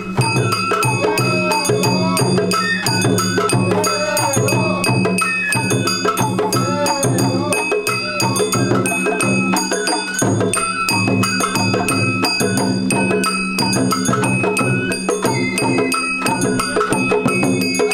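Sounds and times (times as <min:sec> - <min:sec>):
bamboo flute melody: 0:00.0 - 0:17.9
taiko drum beats: 0:00.0 - 0:17.9.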